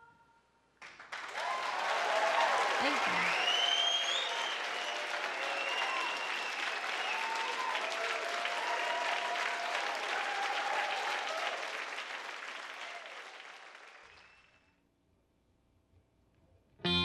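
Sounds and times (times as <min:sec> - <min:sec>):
audience applauding: 0:00.8 - 0:14.6
cheers: 0:01.2 - 0:14.6
whistles: 0:03.2 - 0:07.8, 0:14.0 - 0:14.8.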